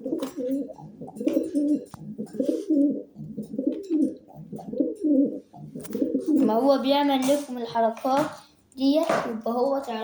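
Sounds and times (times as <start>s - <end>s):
pigeon cooing: 0.0s - 6.8s.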